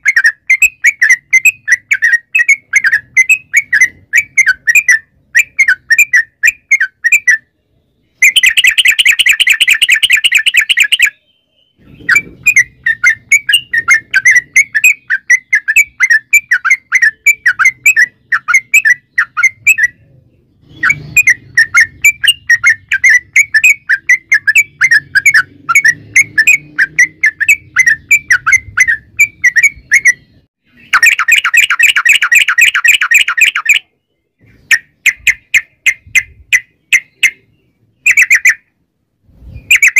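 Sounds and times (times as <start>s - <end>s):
bird fast continuous trills: 0.0s - 33.9s, 34.6s - 38.8s
bird chattering song: 0.0s - 39.9s.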